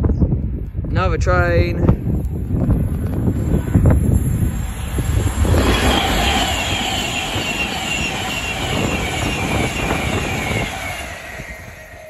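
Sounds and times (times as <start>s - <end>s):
electric train passing: 2.4s - 12.0s
high whine falling in pitch: 3.3s - 12.0s.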